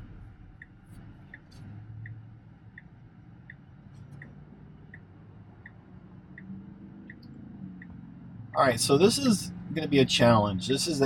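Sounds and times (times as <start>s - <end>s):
low hum: 0.0s - 5.6s
turn signal ticking: 0.0s - 8.4s.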